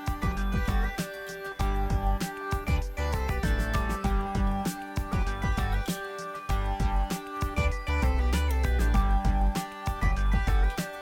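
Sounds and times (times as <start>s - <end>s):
upbeat music with steady beat: 0.0s - 11.0s.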